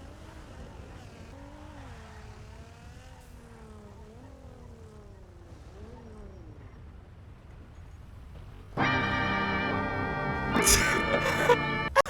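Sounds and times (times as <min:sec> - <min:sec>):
car engine running: 0:07.9 - 0:11.9.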